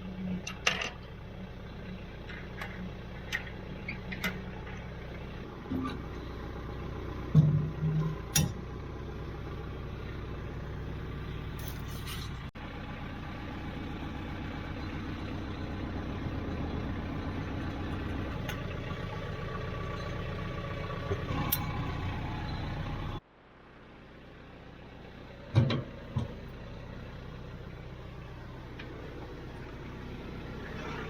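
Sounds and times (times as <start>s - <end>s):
tractor diesel engine idling: 0.0s - 31.0s.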